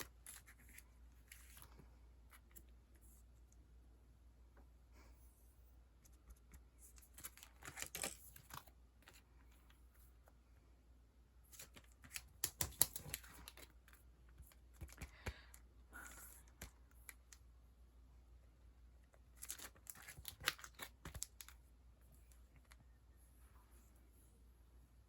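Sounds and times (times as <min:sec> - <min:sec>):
plastic packaging crinkling: 0:19.3 - 0:21.6.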